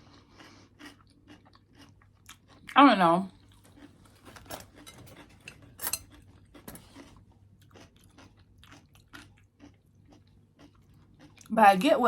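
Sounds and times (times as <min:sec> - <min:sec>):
chewing crunchy food: 0:00.0 - 0:11.6.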